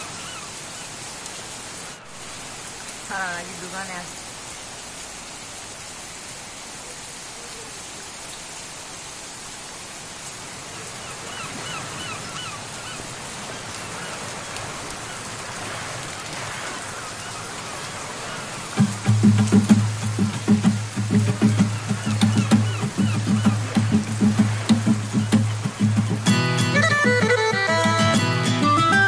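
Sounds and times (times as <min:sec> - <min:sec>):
heavy rain on street water: 0:00.0 - 0:29.0
music with strong beat: 0:18.8 - 0:29.0.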